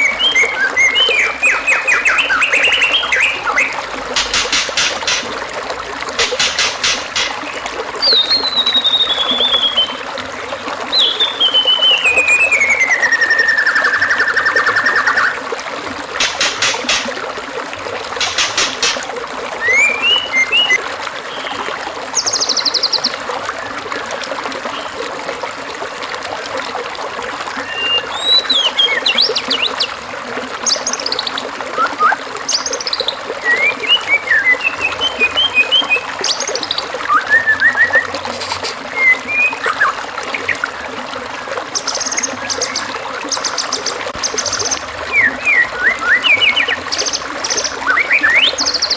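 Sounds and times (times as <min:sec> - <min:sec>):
songbird chirps and trills: 0:00.0 - 0:05.3, 0:06.3 - 0:10.1, 0:10.9 - 0:15.4, 0:19.6 - 0:23.1, 0:30.6 - 0:40.8, 0:41.7 - 0:48.9
trickling water hiss: 0:00.0 - 0:48.9.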